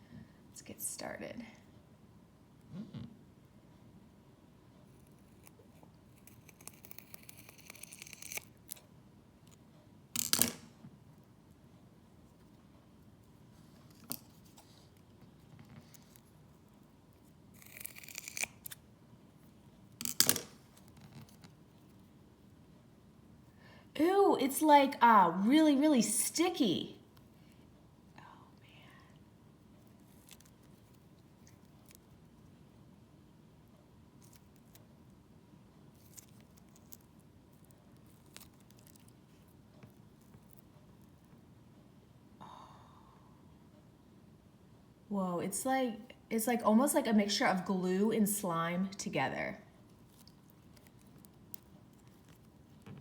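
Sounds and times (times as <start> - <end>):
scissors cutting rubbery toy: 5.0 - 8.8, 17.6 - 18.8.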